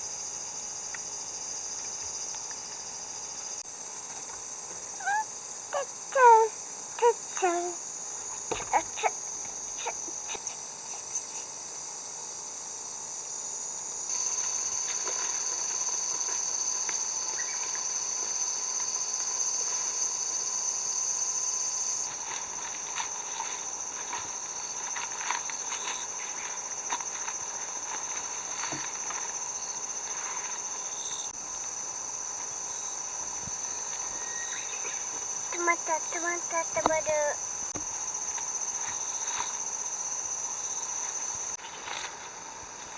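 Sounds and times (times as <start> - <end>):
high-pitched insect chorus: 0.0 - 42.9.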